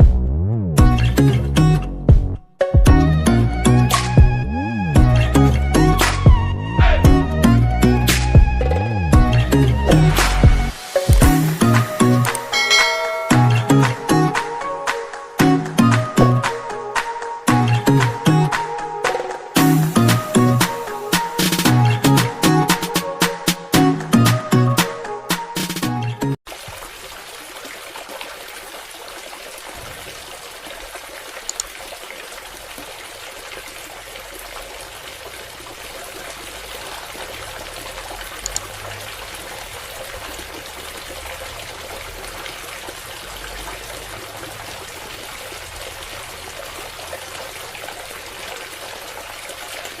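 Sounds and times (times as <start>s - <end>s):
water trickling and pouring: 8.6s - 14.6s, 26.5s - 50.0s.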